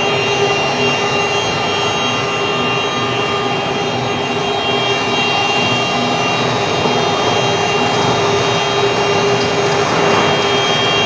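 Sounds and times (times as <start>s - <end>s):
floor grinder running: 0.0s - 11.0s.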